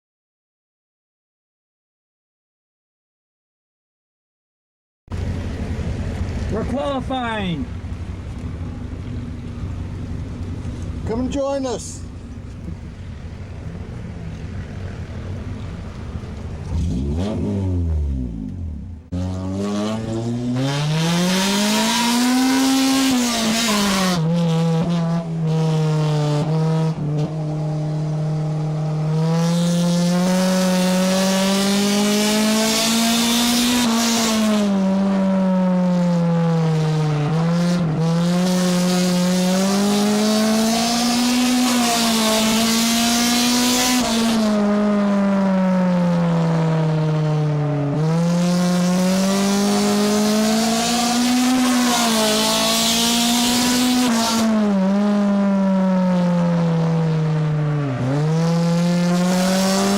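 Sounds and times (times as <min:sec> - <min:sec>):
race car engine revving: 0:05.1 - 0:59.9
wind and tyre noise: 0:05.1 - 0:59.9.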